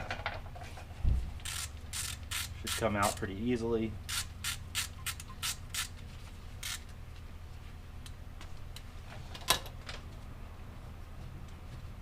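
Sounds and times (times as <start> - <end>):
ratchet clicking: 1.4 - 3.2, 4.1 - 6.0, 6.6 - 6.9.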